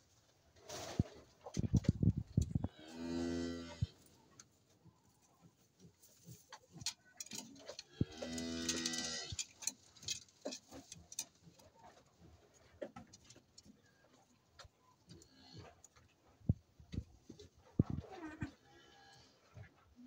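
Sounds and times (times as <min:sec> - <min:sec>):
cow mooing: 0:02.6 - 0:03.9
small clicks and rustles: 0:03.9 - 0:18.6.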